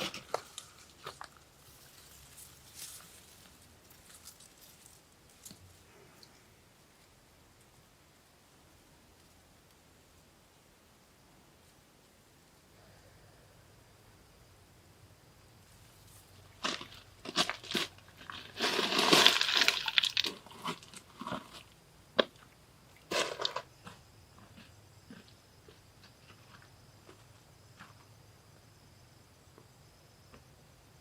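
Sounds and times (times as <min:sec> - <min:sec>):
crunching and rustling: 0:00.0 - 0:06.0, 0:15.7 - 0:22.4
high insect drone: 0:12.6 - 0:31.0.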